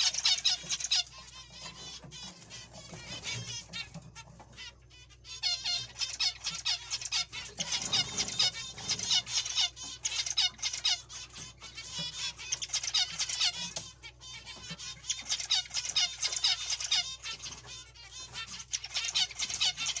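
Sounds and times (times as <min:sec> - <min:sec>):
finches chirping: 0:00.0 - 0:20.0.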